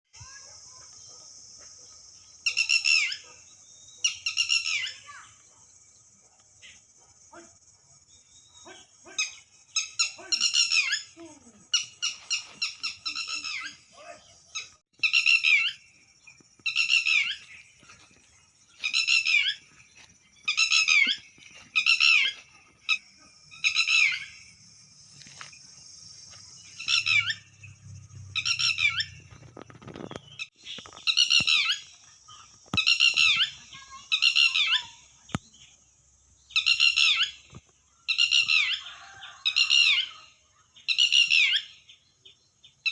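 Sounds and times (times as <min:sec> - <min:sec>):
lapwing calling: 0:02.4 - 0:05.4, 0:08.5 - 0:15.9, 0:16.6 - 0:24.5, 0:26.4 - 0:35.5, 0:36.5 - 0:42.0.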